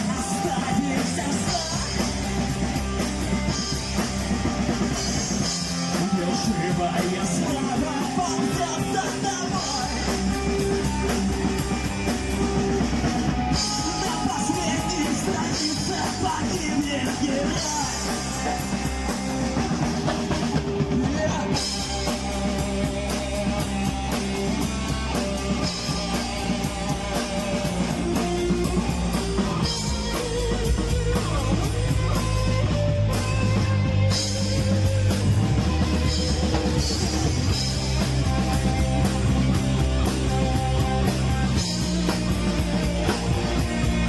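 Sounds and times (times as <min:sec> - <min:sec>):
drum kit beat: 0:00.0 - 0:44.0
rock band instrumental: 0:00.0 - 0:44.0.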